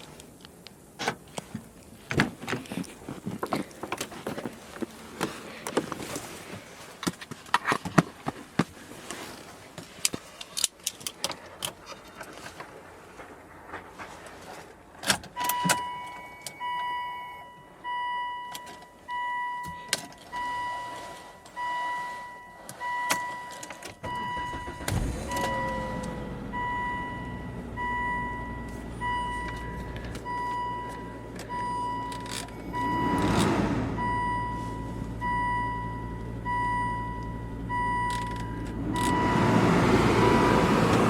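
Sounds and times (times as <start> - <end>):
car warning chime beeping: 15.4 - 41.0
car engine starting and idling: 19.8 - 41.0.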